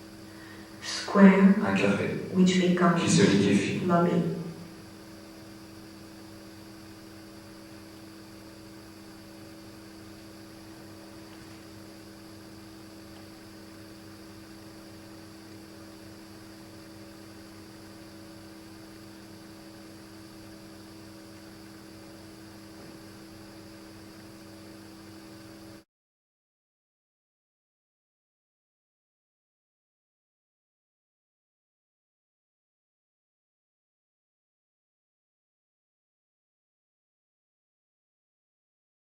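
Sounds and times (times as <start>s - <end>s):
constant hiss: 0.0s - 5.6s, 6.5s - 24.4s
electrical hum: 0.0s - 25.8s.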